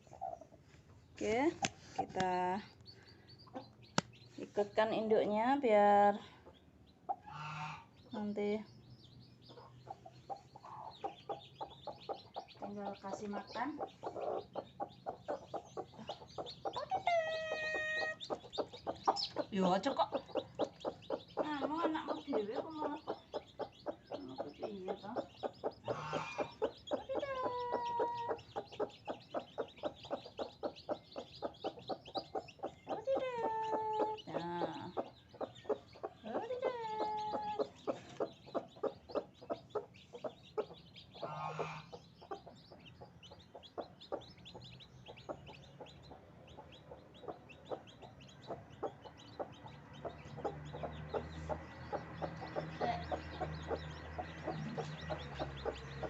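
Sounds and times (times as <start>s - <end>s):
hen clucking: 0.0s - 0.6s, 1.2s - 56.0s.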